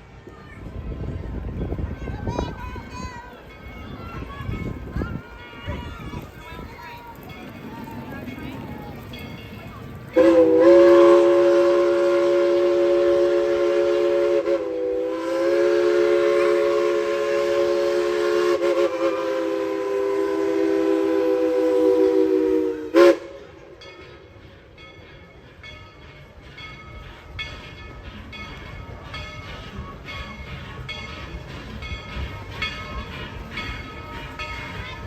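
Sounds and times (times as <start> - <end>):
steam locomotive chime whistle: 7.2 - 35.0.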